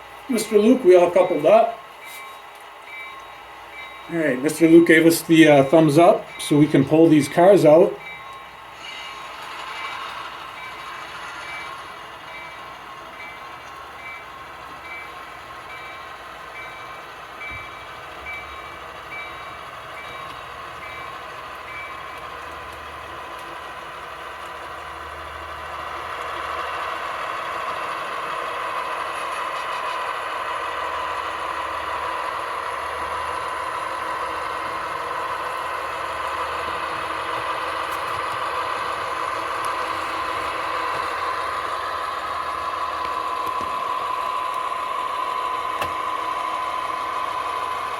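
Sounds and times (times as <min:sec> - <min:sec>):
model diesel engine sound: 0:14.2 - 0:47.9.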